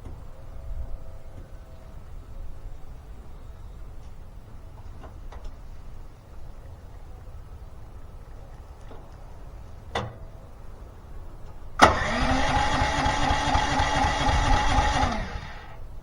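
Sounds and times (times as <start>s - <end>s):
electric starter whirring: 11.8s - 16.0s.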